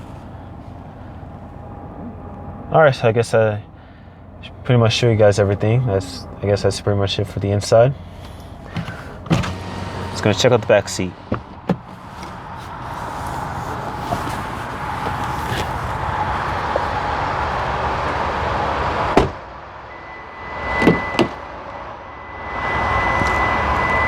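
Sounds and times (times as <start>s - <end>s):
background rush: 0.0s - 19.9s
car door shutting: 7.2s - 17.0s, 19.1s - 19.4s, 20.7s - 21.4s
car electronic chime: 19.9s - 24.0s.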